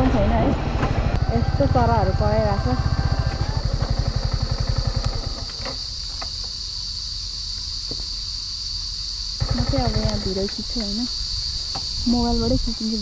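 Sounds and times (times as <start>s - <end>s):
motorcycle engine running: 0.0s - 6.4s, 9.4s - 10.9s
high insect drone: 0.0s - 13.0s.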